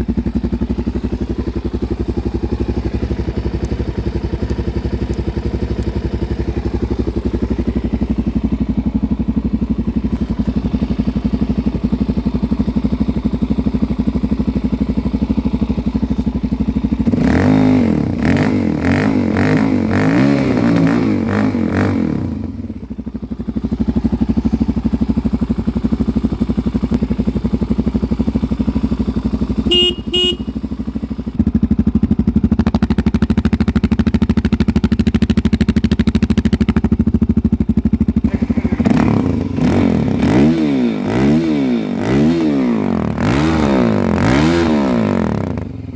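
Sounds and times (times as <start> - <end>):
motorcycle engine idling: 0.0 - 45.9
motorcycle engine revving: 0.0 - 45.9
short horn beeps: 29.6 - 30.6.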